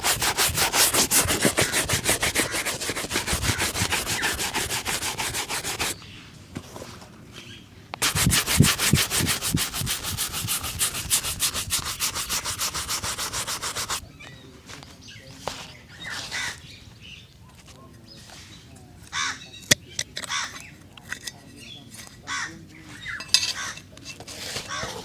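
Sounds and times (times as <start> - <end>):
shoe being buffed: 0.0 - 6.0, 8.0 - 14.0
faint handling sounds: 5.7 - 8.1, 13.8 - 25.0.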